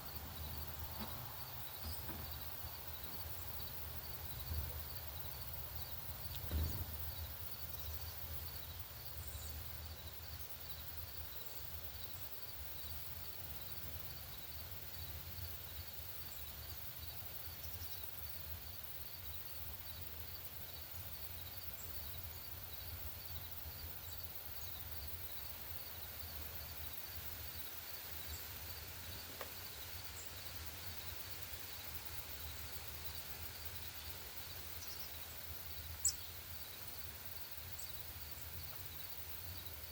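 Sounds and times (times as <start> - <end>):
cricket chirping: 0.0 - 39.9
soft thump: 6.4 - 7.0
faint high bird chirps: 35.8 - 36.8.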